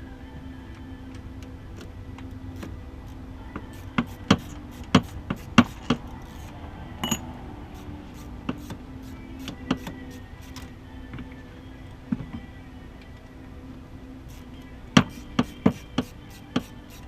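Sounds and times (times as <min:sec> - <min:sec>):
low steady hum: 0:00.0 - 0:17.0
metallic clinks of tools and parts: 0:05.6 - 0:07.3.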